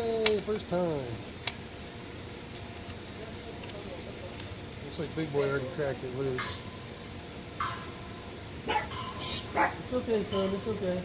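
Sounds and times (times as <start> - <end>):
dog barking: 8.6 - 9.9.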